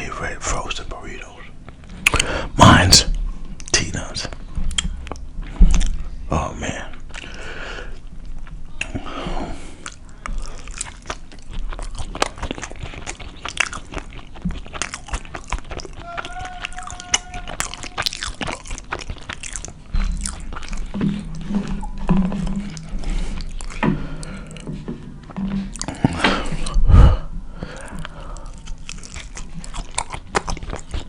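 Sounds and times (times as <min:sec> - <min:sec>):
wet mouth clicks and smacks: 0:01.6 - 0:02.3, 0:03.6 - 0:06.0, 0:07.0 - 0:07.4, 0:09.8 - 0:24.8, 0:27.6 - 0:31.0
chewing and biting food: 0:03.6 - 0:06.1, 0:06.9 - 0:26.8, 0:27.6 - 0:31.0.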